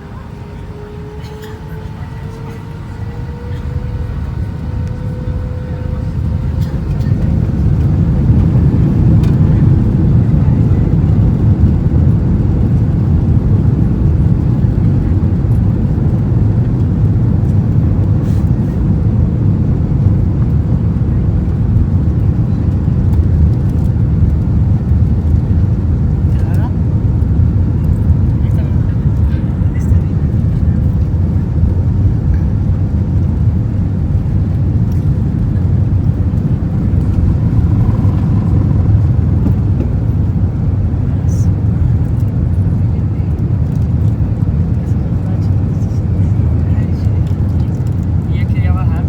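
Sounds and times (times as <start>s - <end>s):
deep rumble of airliner takeoff: 0.0s - 49.0s
jet engine whine: 0.0s - 49.0s.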